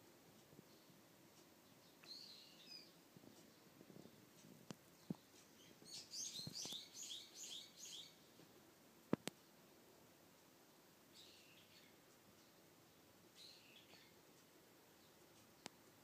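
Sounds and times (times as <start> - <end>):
faint bird chirping: 0.0 - 16.0
soft clicks: 0.3 - 6.9, 8.4 - 9.5, 13.4 - 16.0.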